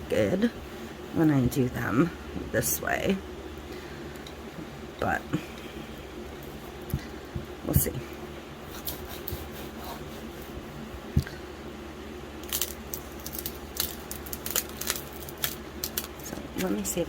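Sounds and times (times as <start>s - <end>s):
vinyl decal crinkling: 12.4s - 17.0s.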